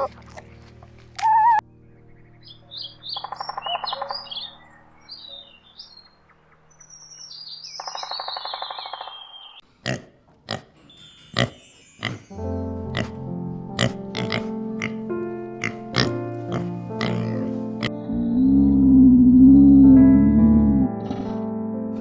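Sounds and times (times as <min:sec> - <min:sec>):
small birds chirping: 0:00.0 - 0:09.6
buzzy bird trill: 0:02.4 - 0:06.2, 0:06.8 - 0:09.6.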